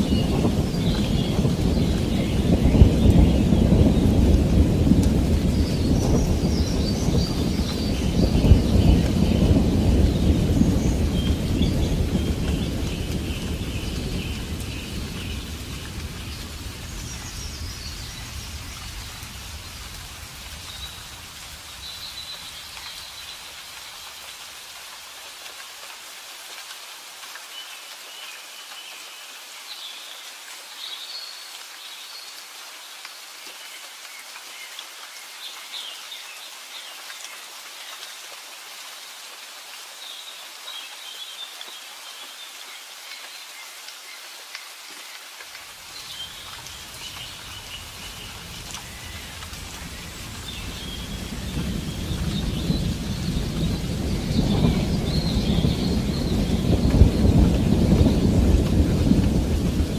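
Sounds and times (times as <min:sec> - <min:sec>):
birds chirping: 0:00.0 - 0:23.5, 0:45.8 - 0:59.9
steady rain falling: 0:00.0 - 0:59.9.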